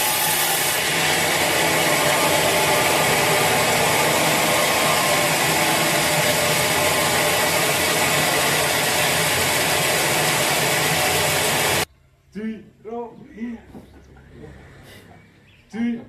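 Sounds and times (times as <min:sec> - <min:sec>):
sawmill machinery running: 0:00.0 - 0:11.9.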